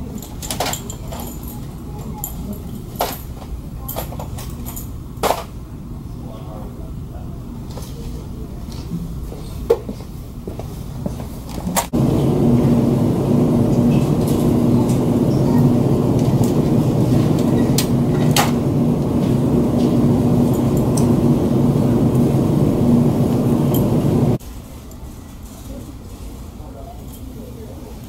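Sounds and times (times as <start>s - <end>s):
vehicle engine rumbling: 12.0s - 24.4s.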